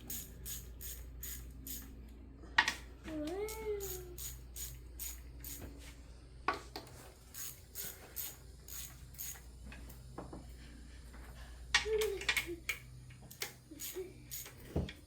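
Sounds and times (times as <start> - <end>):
hand tools clicking and clinking: 0.0 - 1.9, 3.4 - 5.7, 7.3 - 9.5, 12.1 - 14.8.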